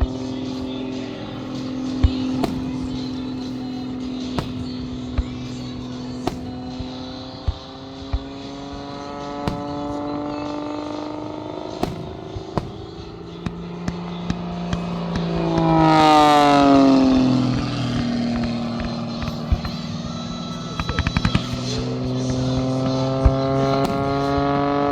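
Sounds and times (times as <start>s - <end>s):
aircraft engine passing overhead: 0.0s - 24.9s
firework bangs and pops: 1.9s - 14.0s, 22.6s - 24.9s.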